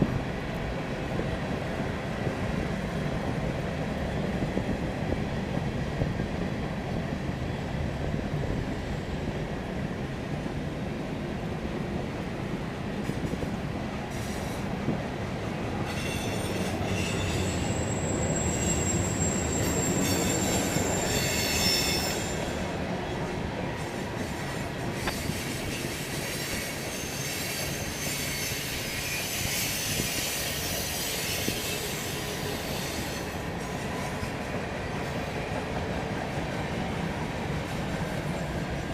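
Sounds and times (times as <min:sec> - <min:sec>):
train cars rumbling on rails: 0:00.0 - 0:38.9
high-pitched wheel squeal: 0:15.9 - 0:22.6, 0:25.0 - 0:33.4.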